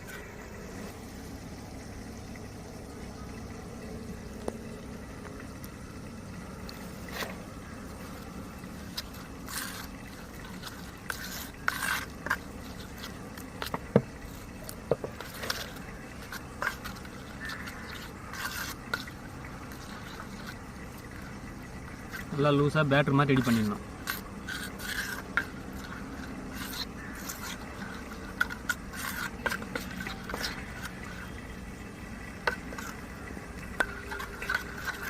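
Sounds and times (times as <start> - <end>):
utensil scraping a bowl: 6.7 - 35.0.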